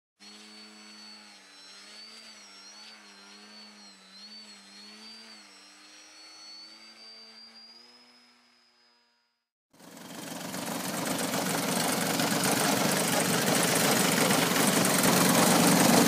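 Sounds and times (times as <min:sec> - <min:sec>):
model plane engine and propeller: 0:00.2 - 0:16.0.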